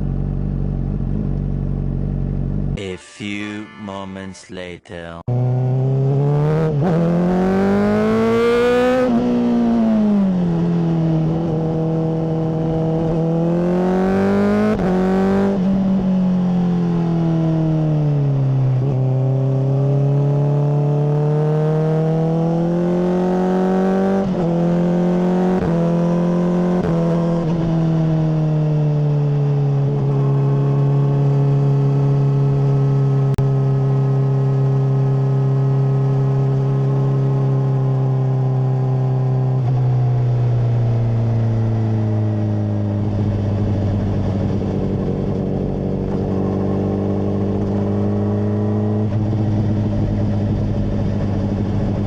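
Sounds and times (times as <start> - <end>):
motorcycle engine revving: 0.0 - 2.8, 5.3 - 52.0.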